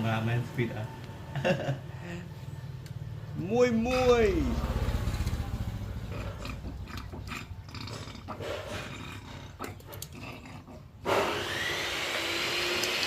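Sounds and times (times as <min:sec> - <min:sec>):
motorcycle engine running low: 0:03.1 - 0:07.6
loud high whirring: 0:11.0 - 0:13.0.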